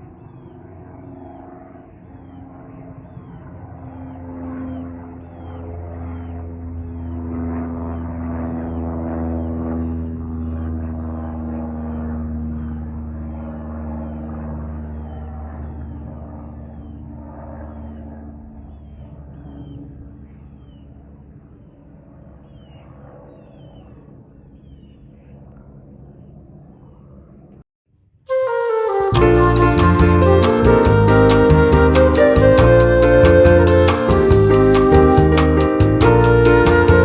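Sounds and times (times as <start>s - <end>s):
aircraft engines rumbling: 0.0s - 27.6s, 28.3s - 37.0s
small birds chirping: 2.0s - 7.2s, 16.6s - 21.0s, 22.4s - 25.4s.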